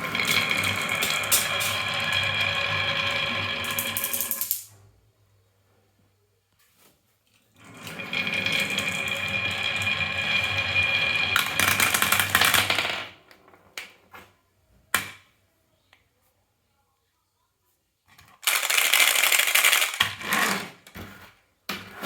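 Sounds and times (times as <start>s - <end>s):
marbles rolling down wooden track: 0.0s - 4.7s, 7.6s - 13.7s, 18.4s - 20.7s
marbles clicking into place: 3.6s - 4.7s.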